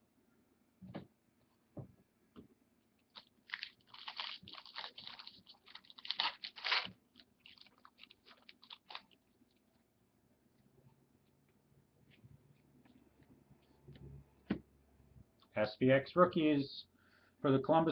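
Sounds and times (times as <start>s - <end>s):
foil wrapper tearing and crinkling: 3.1s - 9.2s.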